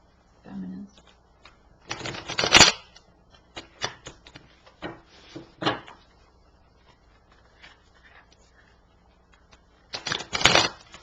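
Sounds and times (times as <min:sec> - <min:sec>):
cards being shuffled: 0:01.0 - 0:06.1, 0:06.8 - 0:11.0.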